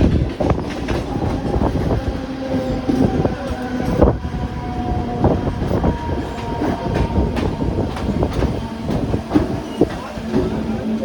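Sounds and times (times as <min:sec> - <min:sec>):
train rumble and hum: 0:00.0 - 0:11.0
train wheels knocking over rail joints: 0:05.6 - 0:11.0.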